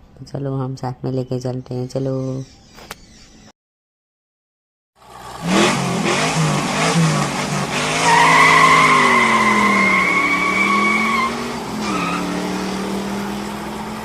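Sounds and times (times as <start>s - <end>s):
car engine revving: 5.0s - 14.0s
tyres squealing: 7.8s - 12.4s.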